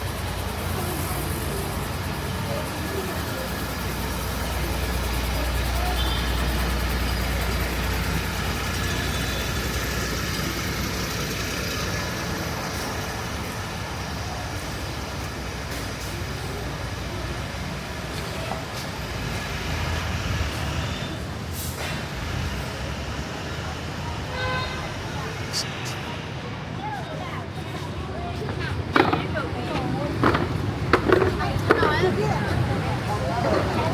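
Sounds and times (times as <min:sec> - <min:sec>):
vehicles passing: 0:00.0 - 0:33.9.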